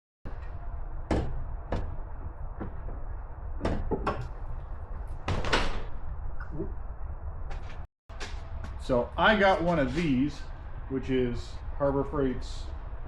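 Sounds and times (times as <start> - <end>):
clunks and knocks: 0.3 - 3.0, 3.6 - 5.9
steady low rumble: 0.3 - 13.0.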